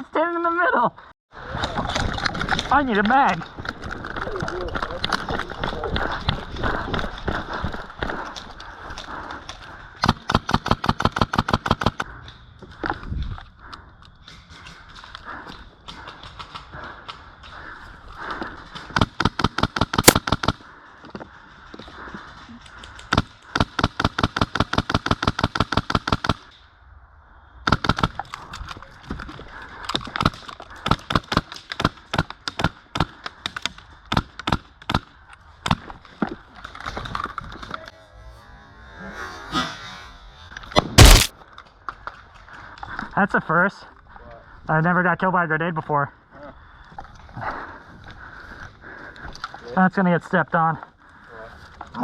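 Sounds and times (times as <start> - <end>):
airsoft guns firing: 19.1 - 20.6, 41.0 - 41.3.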